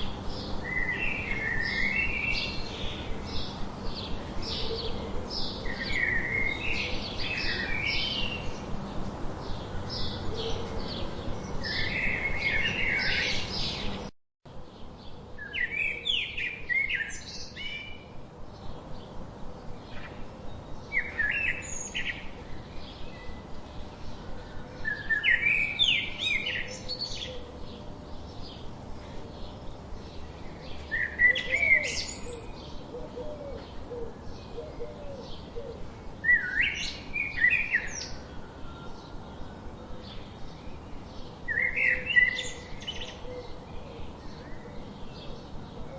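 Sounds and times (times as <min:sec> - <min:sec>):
background hiss: 0:00.0 - 0:45.9.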